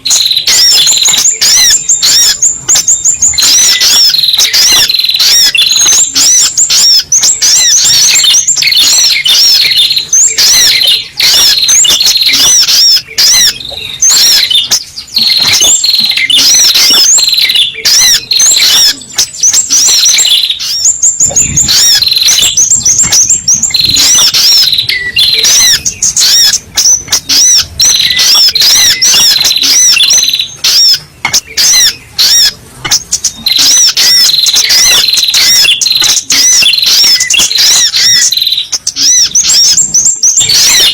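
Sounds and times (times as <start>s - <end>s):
rapid high-pitched bird chirping: 0.0s - 40.9s.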